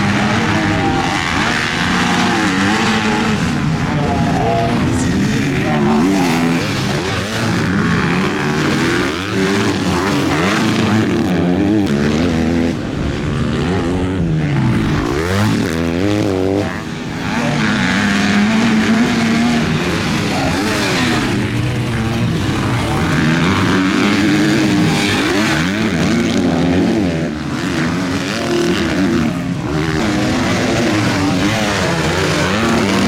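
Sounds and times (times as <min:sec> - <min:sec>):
motocross bike engines revving: 0:00.0 - 0:33.0.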